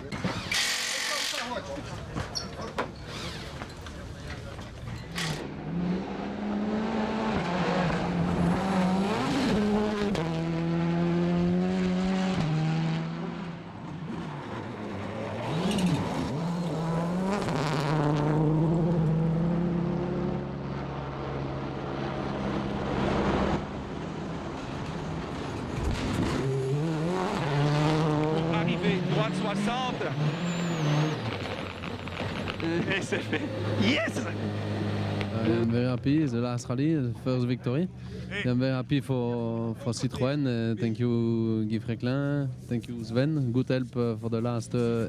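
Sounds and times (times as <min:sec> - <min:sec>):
rally car engine revving: 0:00.0 - 0:36.0
tyre and road noise: 0:00.0 - 0:36.3
tyre squeal: 0:02.3 - 0:03.9, 0:28.2 - 0:35.4.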